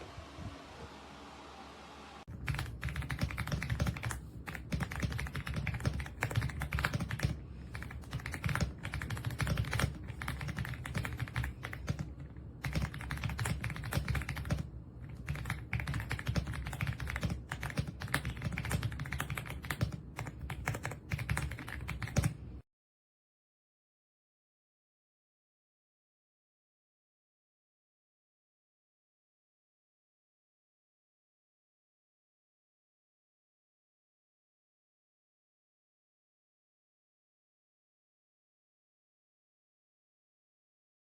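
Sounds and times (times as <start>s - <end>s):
fast typing on mechanical keyboard: 2.3s - 22.4s.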